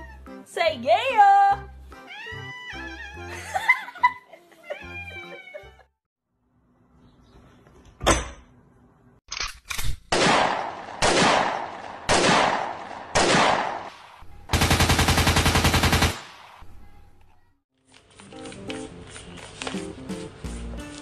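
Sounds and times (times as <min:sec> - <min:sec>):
sharp crack: 0:10.0 - 0:14.2
gunshots: 0:10.1 - 0:16.6
rapid burst of gunfire: 0:14.5 - 0:16.5.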